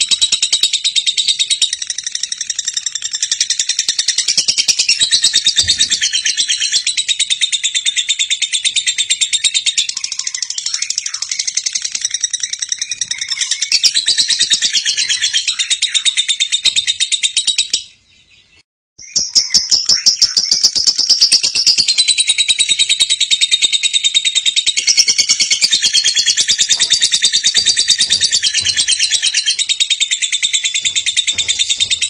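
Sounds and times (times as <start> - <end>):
lovebird trilling chatter: 24.8 - 32.0.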